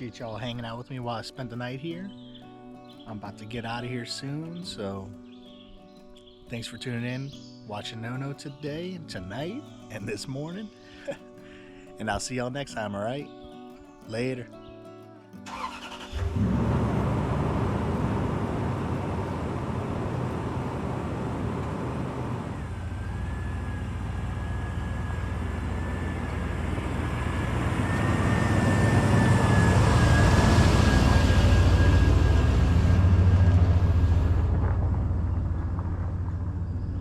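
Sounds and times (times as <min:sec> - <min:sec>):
truck engine and road rumble: 0:15.5 - 0:37.0
faint steady whine: 0:18.6 - 0:34.8.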